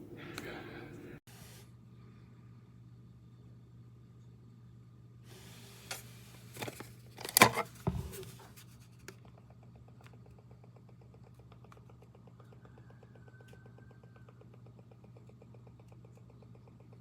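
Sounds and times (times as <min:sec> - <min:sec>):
steady low hum: 0:00.0 - 0:11.2
rustling and clattering handling noise: 0:05.8 - 0:09.0.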